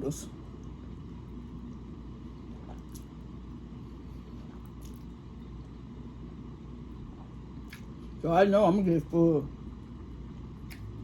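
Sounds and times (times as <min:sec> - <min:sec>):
steady low hum: 0:00.0 - 0:11.0
person chewing noodles: 0:01.5 - 0:05.8
faint wet clicks: 0:10.6 - 0:10.9.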